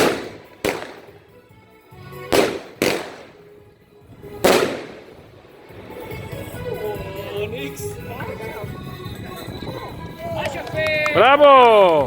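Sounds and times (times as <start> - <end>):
loud firecracker bangs: 0.0 - 1.4, 2.2 - 3.6, 4.2 - 5.5
faint music: 0.0 - 12.0.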